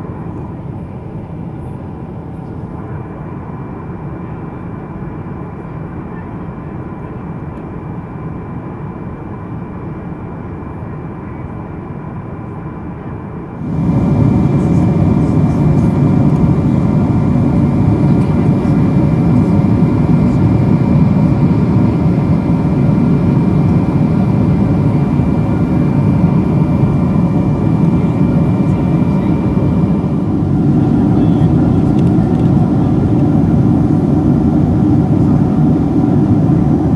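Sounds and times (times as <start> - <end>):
jet engine and airflow rush: 13.2 - 36.9
faint steady tones: 13.3 - 36.9.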